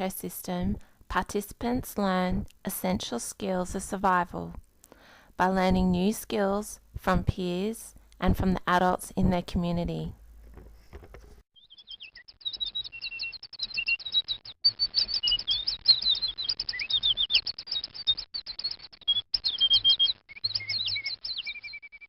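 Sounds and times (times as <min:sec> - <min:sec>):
small birds chirping rapidly: 0:11.6 - 0:22.0.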